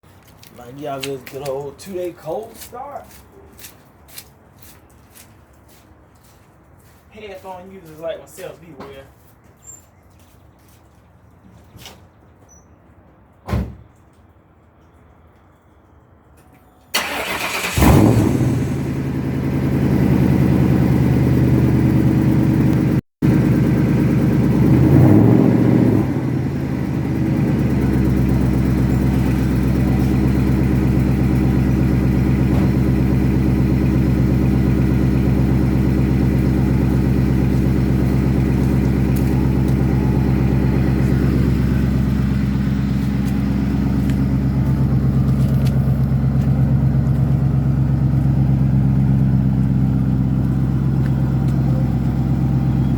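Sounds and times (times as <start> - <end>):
car engine cold start and idle: 16.9 - 52.9.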